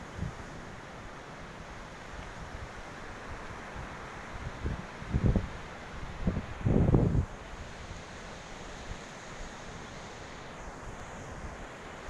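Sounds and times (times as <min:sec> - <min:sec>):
wind noise on microphone: 0:00.0 - 0:00.8, 0:02.1 - 0:08.0.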